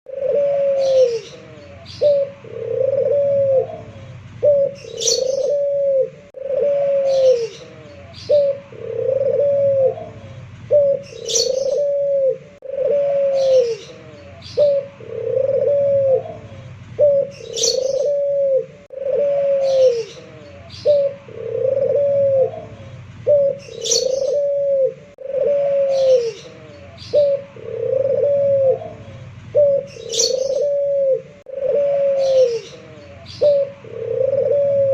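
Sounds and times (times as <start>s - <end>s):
dove cooing: 0.1s - 34.9s
small bird chirping: 0.8s - 2.4s, 3.8s - 5.7s, 7.1s - 8.6s, 10.1s - 12.0s, 13.3s - 14.9s, 16.4s - 18.3s, 19.6s - 21.2s, 22.6s - 24.6s, 25.8s - 27.4s, 28.9s - 30.8s.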